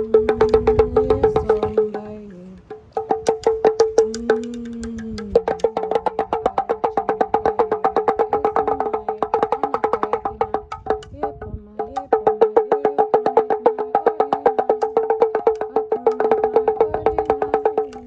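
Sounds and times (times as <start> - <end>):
rapid woody clicking: 2.6 - 11.2.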